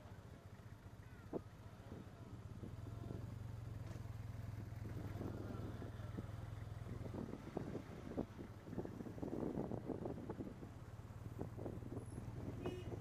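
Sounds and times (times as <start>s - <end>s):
motorcycle engine humming: 0.0s - 13.0s
wind gusts on microphone: 7.0s - 13.0s.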